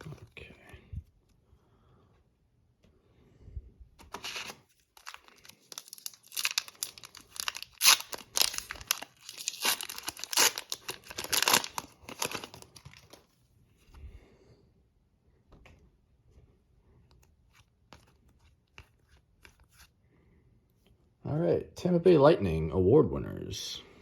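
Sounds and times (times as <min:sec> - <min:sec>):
wrapper tearing and crinkling: 0:04.0 - 0:13.2.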